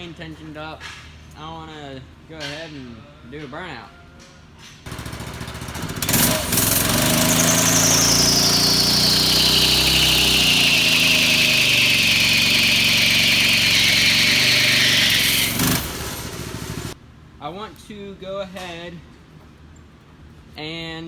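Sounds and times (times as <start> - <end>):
small engine revving: 4.9 - 17.0
tyre squealing: 6.0 - 17.0.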